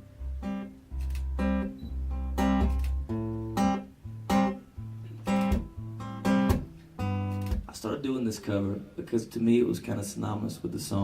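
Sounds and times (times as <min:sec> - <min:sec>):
acoustic guitar strumming chords: 0:00.0 - 0:07.8.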